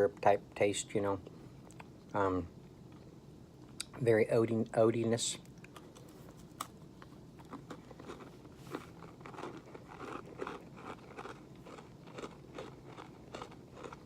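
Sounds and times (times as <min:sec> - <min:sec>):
person chewing crunchy granola bar: 0:05.6 - 0:14.0.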